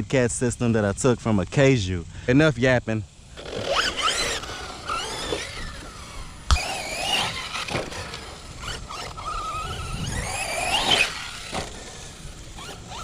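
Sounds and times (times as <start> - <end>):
electric motor whining: 3.2 - 13.0.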